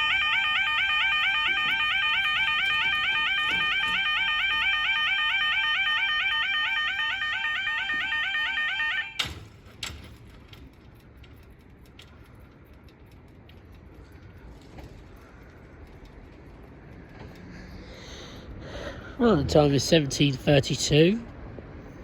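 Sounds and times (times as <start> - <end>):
warbling crossing alarm: 0.0 - 9.4.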